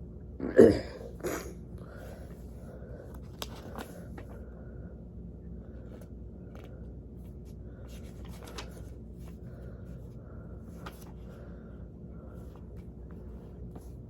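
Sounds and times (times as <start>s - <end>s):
low room hum: 0.0s - 14.0s
faint clicks and rustles: 5.8s - 10.1s.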